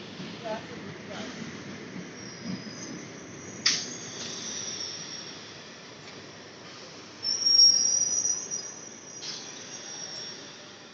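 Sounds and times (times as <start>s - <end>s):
train wheels rumbling on rails: 0.0s - 10.9s
sharp clack: 3.6s - 4.0s
high-pitched wheel squeal: 7.2s - 10.7s.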